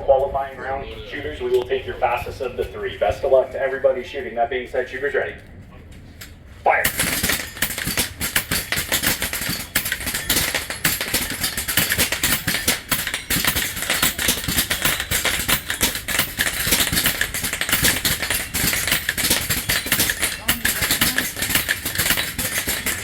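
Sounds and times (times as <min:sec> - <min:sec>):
air rifles firing rapidly: 0:06.8 - 0:23.0
pellets striking metal targets: 0:06.8 - 0:23.0.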